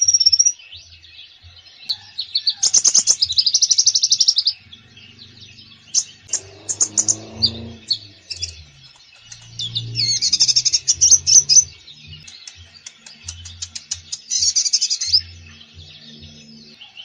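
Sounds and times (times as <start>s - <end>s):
bird singing chirps and trills: 0.0s - 17.0s
low muffled sound: 4.6s - 14.1s.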